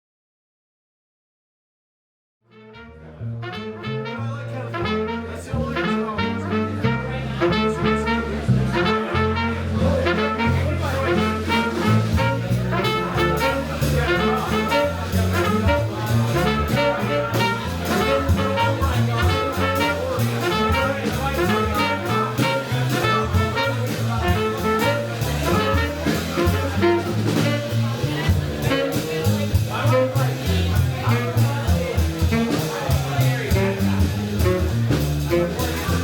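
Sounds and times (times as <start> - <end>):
horns playing jazz: 2.5 - 36.0
walking bass line: 2.5 - 36.0
drums: 4.7 - 36.0.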